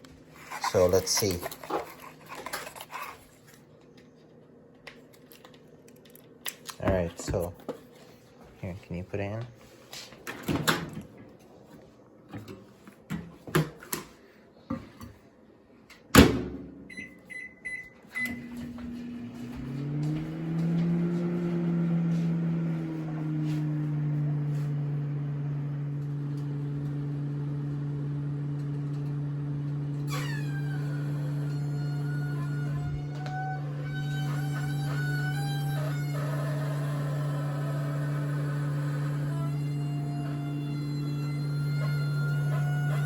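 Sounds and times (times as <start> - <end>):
microwave humming: 15.9 - 43.0.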